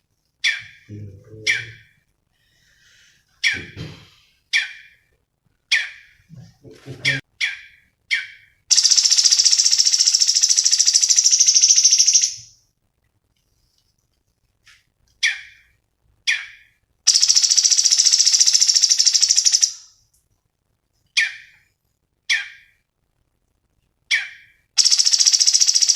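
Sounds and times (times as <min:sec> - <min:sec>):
songbird trilling and chipping: 0:07.4 - 0:12.4, 0:16.3 - 0:19.8.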